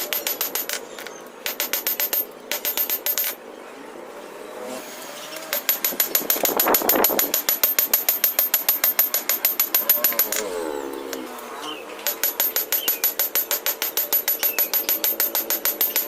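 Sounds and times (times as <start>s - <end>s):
power hammer blows on steel: 5.4s - 11.3s, 12.0s - 16.0s
falling tone: 9.8s - 12.0s.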